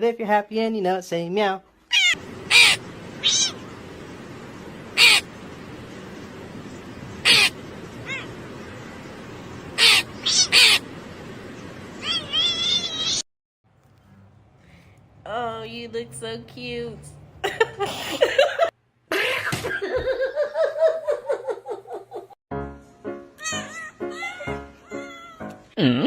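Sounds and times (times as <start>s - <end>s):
cat meowing: 1.9s - 3.6s, 7.2s - 8.4s, 9.8s - 10.8s, 12.0s - 13.2s, 23.4s - 25.6s
steady background hiss: 2.2s - 13.2s.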